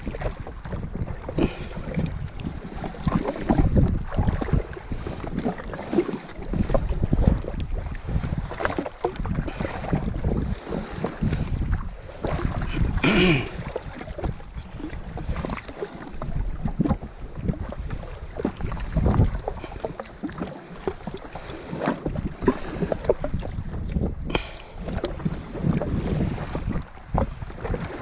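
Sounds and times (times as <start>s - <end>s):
water slapping and splashing: 0.0s - 28.0s
wind buffeting microphone: 0.0s - 28.0s.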